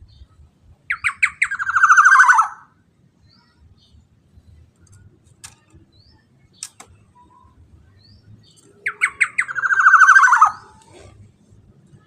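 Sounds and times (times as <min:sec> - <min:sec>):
bird calling with buzzy trill: 0:00.9 - 0:02.8, 0:06.0 - 0:11.2
sharp click: 0:06.6 - 0:06.9.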